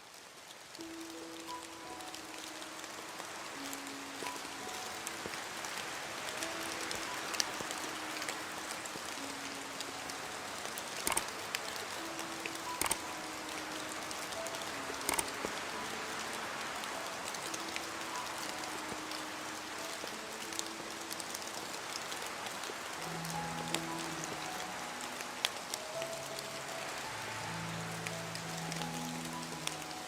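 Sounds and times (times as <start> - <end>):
steady rain: 0.0 - 30.0
soft music notes: 0.6 - 30.0
sharp drip clicks: 11.0 - 11.8, 12.5 - 13.2, 14.7 - 15.6.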